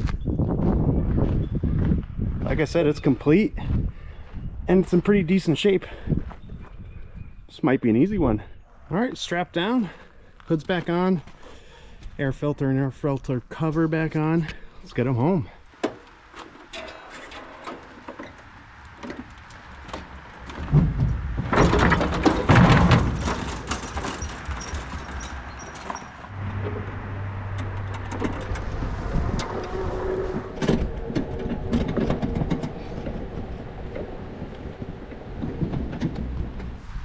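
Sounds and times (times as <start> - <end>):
trailer rattling: 13.6 - 37.0
vehicle engine droning: 16.0 - 37.0.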